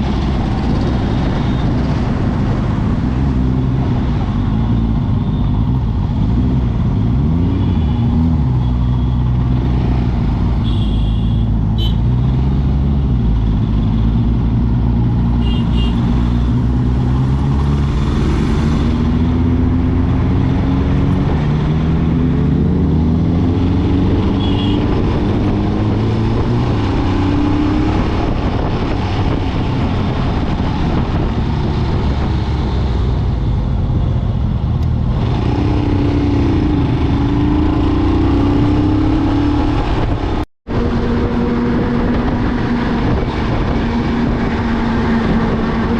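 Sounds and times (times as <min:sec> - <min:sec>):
motorcycle engine accelerating: 0:16.0 - 0:33.1, 0:34.6 - 0:45.9.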